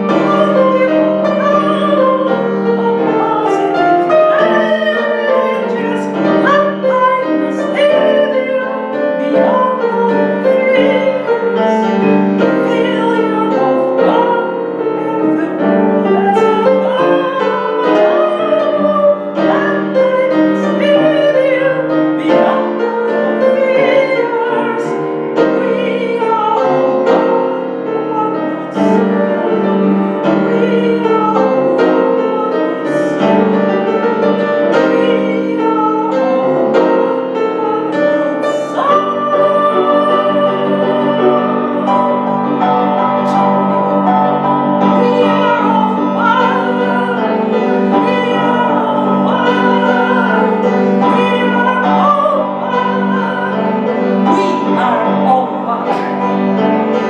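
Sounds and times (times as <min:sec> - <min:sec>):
piano accompaniment: 0:00.0 - 0:57.0
person singing operatically: 0:44.8 - 0:57.0.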